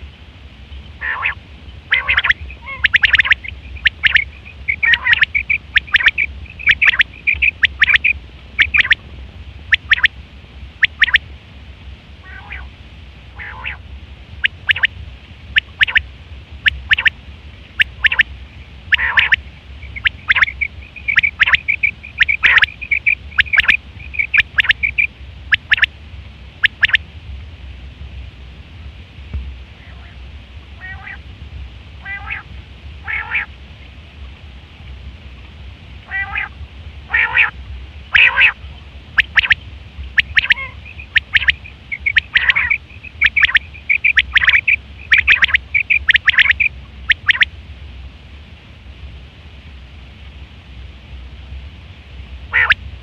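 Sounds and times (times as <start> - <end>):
steady low hum: 0.0 - 53.0
quail calling: 0.9 - 9.0, 9.7 - 10.1, 10.8 - 11.2, 12.2 - 12.7, 13.4 - 13.8, 14.4 - 14.9, 15.6 - 16.0, 16.6 - 17.2, 17.8 - 18.3, 18.9 - 25.9, 26.6 - 27.0, 30.8 - 31.2, 32.0 - 33.5, 36.0 - 47.5, 52.5 - 52.8.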